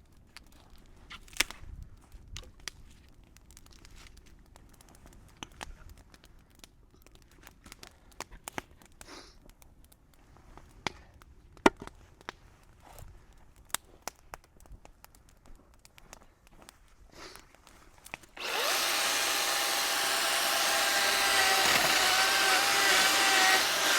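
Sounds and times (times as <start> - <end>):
bonfire crackling and popping: 0.0 - 18.4.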